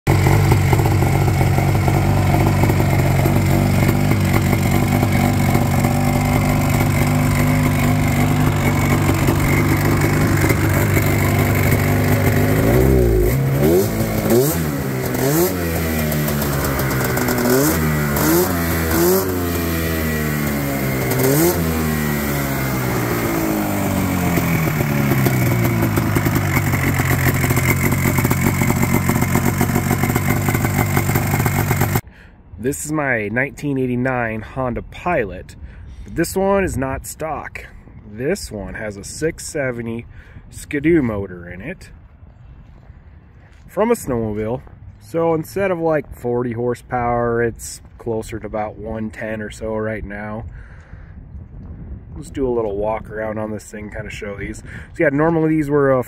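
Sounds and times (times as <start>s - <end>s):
two-stroke engine running and revving: 0.1s - 32.0s.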